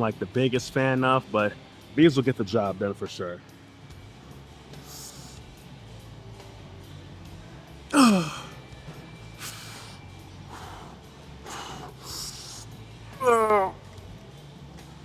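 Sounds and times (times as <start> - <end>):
man breathing hard: 4.8 - 5.5, 7.9 - 8.6, 9.3 - 13.8
man sighing loudly: 7.9 - 8.5.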